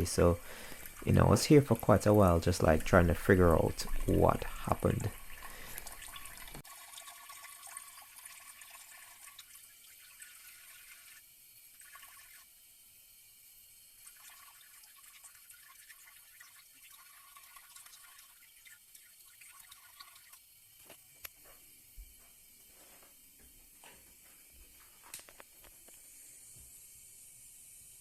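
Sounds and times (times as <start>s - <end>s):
water trickling and dripping: 0.0s - 12.5s, 13.9s - 20.6s.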